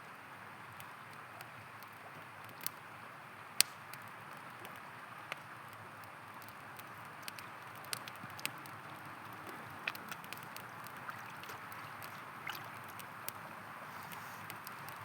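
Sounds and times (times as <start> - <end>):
campfire crackling and popping: 0.5 - 15.0.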